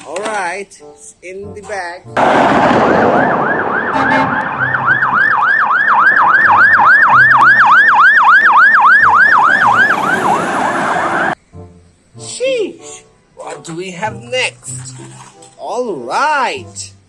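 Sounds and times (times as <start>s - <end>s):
electronic siren yelping: 2.2s - 11.4s.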